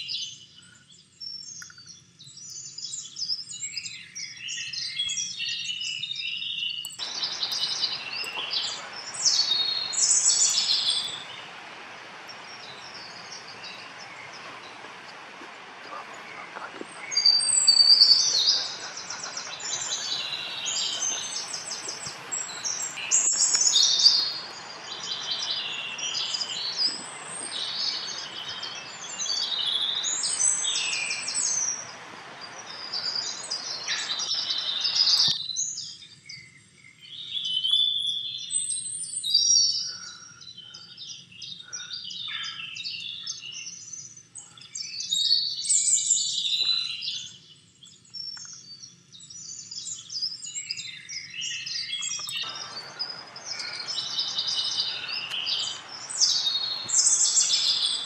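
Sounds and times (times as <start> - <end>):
songbirds chirping and singing: 0.0 - 38.5, 39.2 - 58.0
steady background hiss: 6.9 - 37.4, 38.5 - 58.0.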